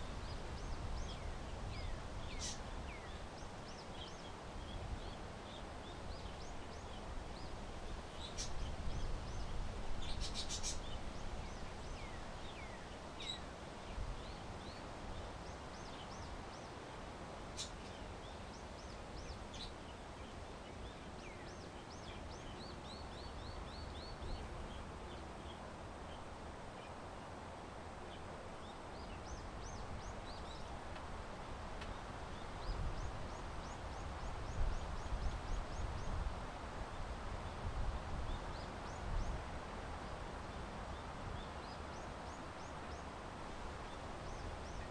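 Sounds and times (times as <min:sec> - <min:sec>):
small birds chirping: 0:00.0 - 0:27.3.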